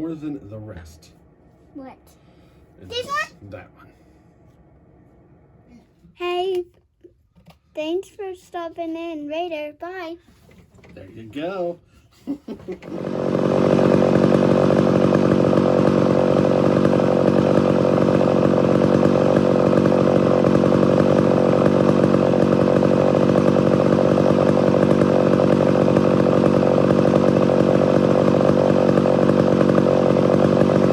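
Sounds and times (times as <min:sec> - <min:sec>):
chainsaw running at high speed: 0:12.8 - 0:30.9.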